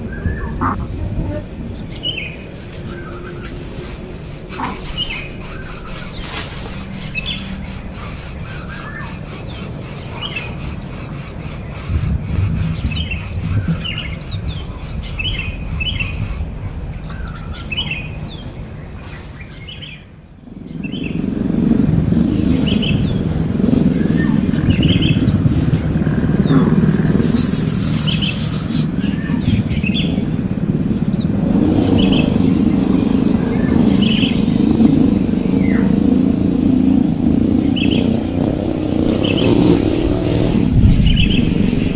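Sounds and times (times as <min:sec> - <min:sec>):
small birds chirping: 0:00.0 - 0:41.9
loud low rumble: 0:20.6 - 0:27.8, 0:28.9 - 0:41.9.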